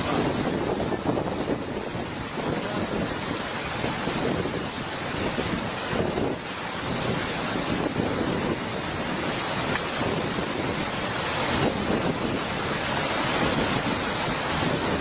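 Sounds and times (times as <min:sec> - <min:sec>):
rushing floodwater: 0:00.0 - 0:15.0.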